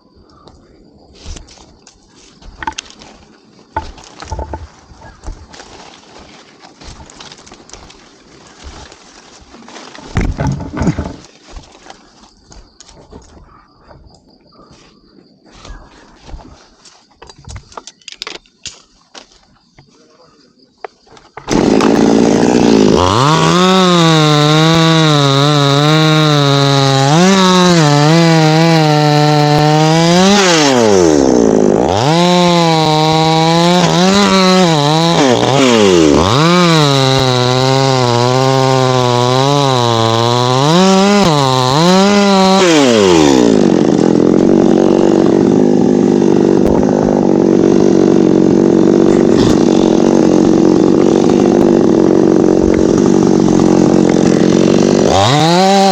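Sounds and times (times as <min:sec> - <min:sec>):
chainsaw cutting wood: 0:02.6 - 0:12.0, 0:21.3 - 0:55.9.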